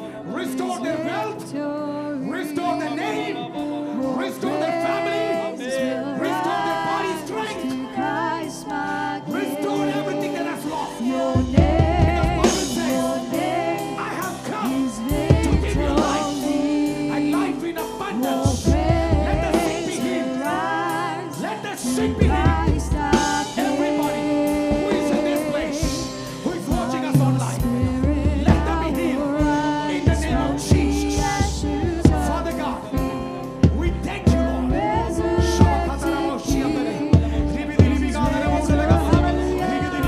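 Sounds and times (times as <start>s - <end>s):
gospel singing: 0.0s - 40.0s
band with bass and drums: 11.2s - 40.0s.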